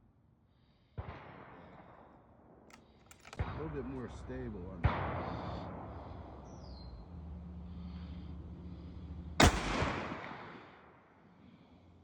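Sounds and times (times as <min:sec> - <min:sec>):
rifle shot echoing: 0:09.4 - 0:10.9.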